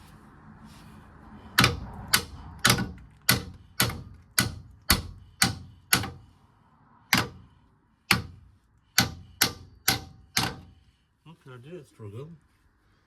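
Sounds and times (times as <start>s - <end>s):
hammer striking metal: 1.6s - 6.3s, 7.1s - 7.5s, 8.1s - 10.7s.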